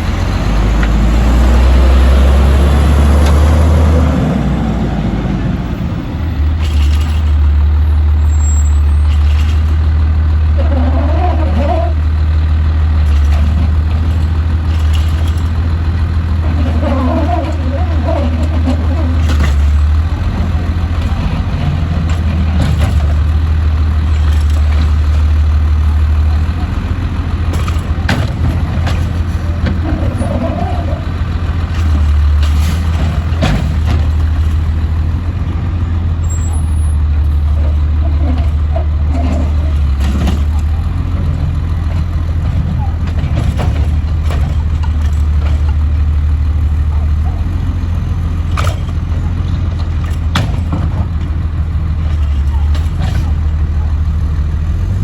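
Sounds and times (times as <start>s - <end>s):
garbage truck running: 0.0s - 55.0s
sharp knocks and clanks: 26.3s - 35.0s, 48.5s - 51.4s.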